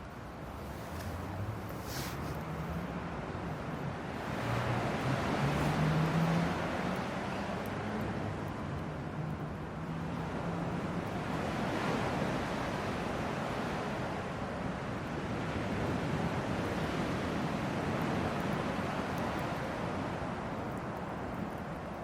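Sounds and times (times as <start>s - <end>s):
campfire rushing: 0.0s - 2.9s, 3.5s - 22.0s
fire crackling: 5.4s - 22.0s.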